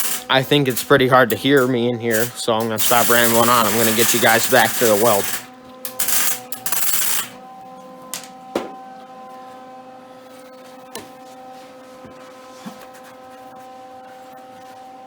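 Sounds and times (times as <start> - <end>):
harsh hissing noise: 0.0 - 7.4.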